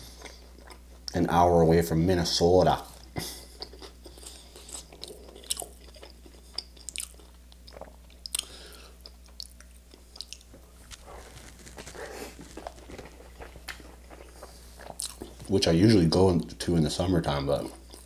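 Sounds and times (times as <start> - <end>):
toast crunching: 2.8 - 15.7.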